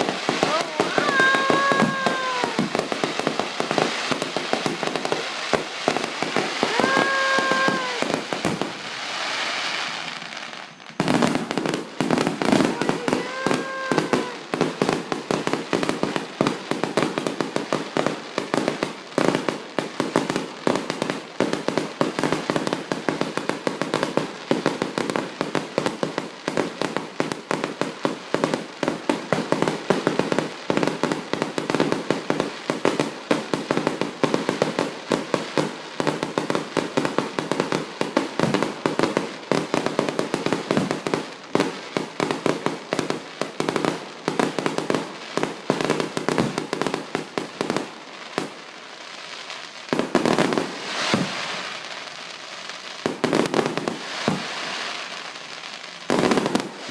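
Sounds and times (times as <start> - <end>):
firework whistling: 0.0 - 14.8, 50.6 - 51.9
fireworks bangs and crackling: 0.0 - 56.9.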